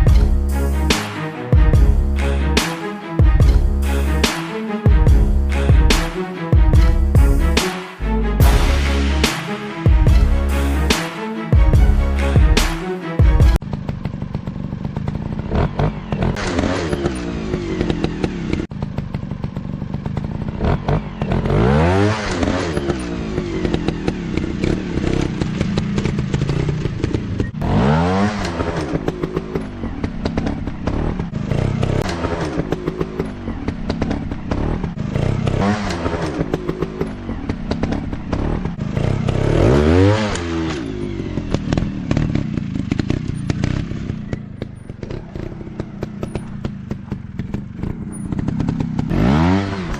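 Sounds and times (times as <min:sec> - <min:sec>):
dirt bike engines revving: 0:13.8 - 0:49.9.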